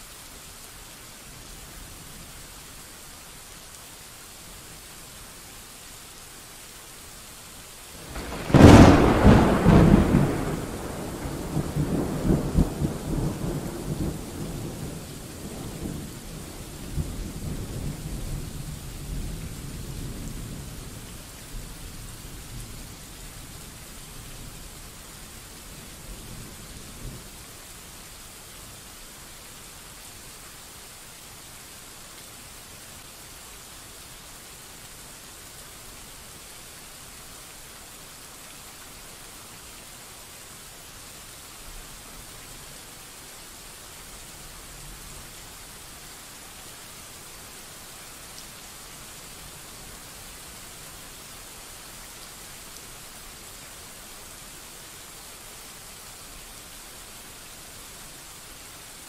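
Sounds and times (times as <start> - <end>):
steady rain hiss: 0.0 - 59.0
distant thunder rumble: 8.0 - 18.5.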